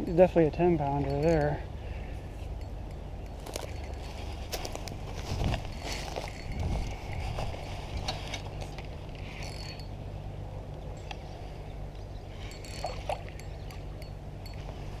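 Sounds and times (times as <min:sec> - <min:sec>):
steady low rumble: 0:00.0 - 0:15.0
water sloshing around a fish: 0:12.3 - 0:15.0.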